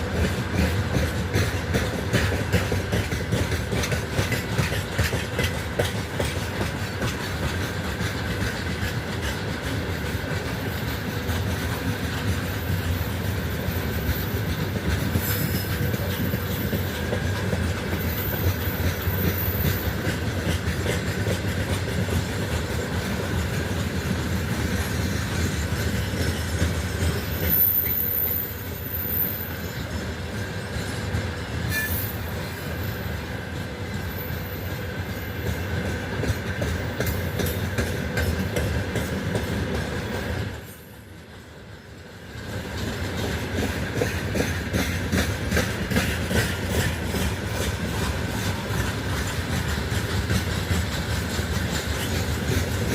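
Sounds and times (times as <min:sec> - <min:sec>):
freight train rumbling past: 0:00.0 - 0:52.9
rail-joint clacking: 0:00.0 - 0:52.9
thin wheel squeal: 0:31.7 - 0:32.4.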